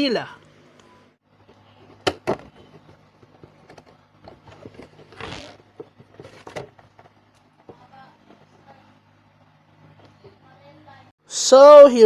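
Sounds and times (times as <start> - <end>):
plastic scraping on cardboard: 2.3 - 7.1.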